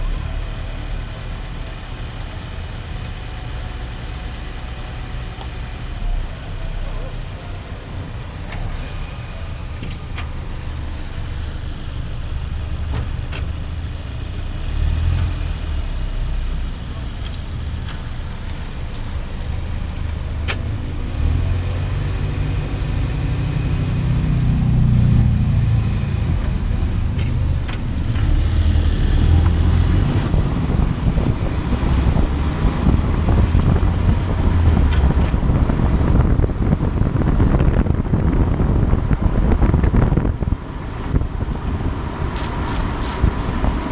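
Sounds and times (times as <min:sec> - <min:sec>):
car engine accelerating: 0:00.0 - 0:43.9
wind and road rush: 0:00.0 - 0:43.9.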